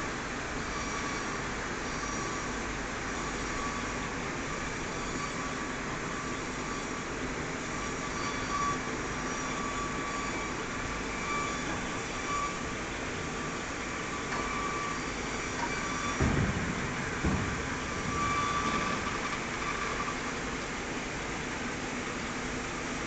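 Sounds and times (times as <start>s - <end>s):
thin high whine: 0.6s - 20.6s
thumps: 15.6s - 20.3s.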